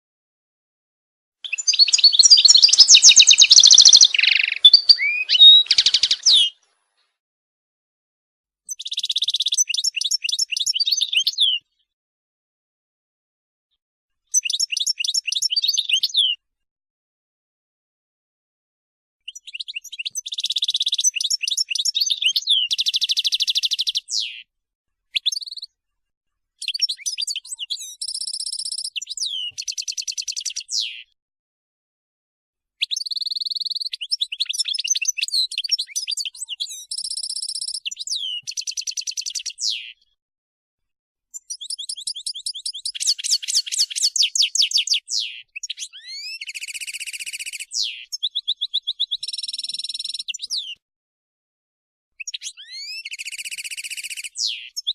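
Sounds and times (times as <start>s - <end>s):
bird singing: 1.4s - 6.7s, 8.7s - 11.7s, 14.3s - 16.4s, 19.3s - 24.5s, 25.2s - 25.7s, 26.6s - 31.2s, 32.9s - 40.1s, 41.4s - 50.8s, 52.2s - 54.9s.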